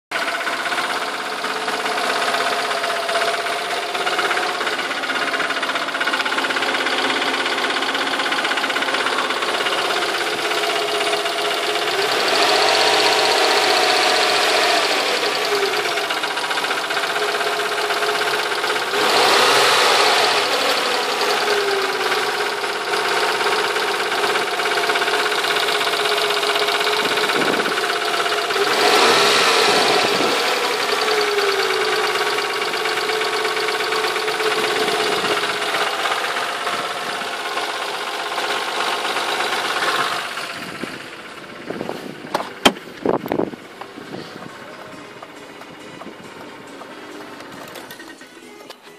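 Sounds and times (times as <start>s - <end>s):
car engine knocking and revving: 0.1s - 48.8s.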